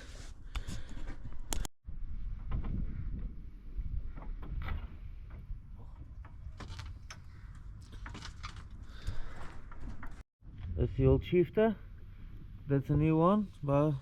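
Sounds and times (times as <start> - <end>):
low rumble: 10.1 - 13.2.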